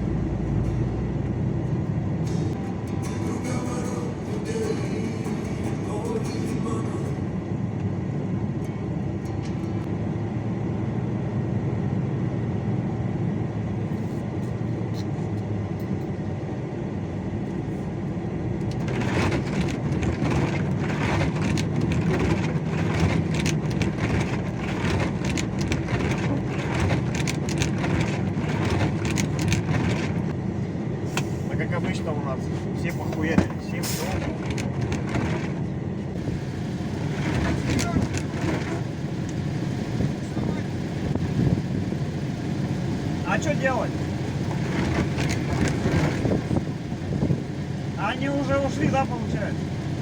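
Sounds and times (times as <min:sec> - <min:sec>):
engine low rumble: 0:00.0 - 0:50.0
rough knocking and rattling noise: 0:18.6 - 0:30.4, 0:33.2 - 0:50.0.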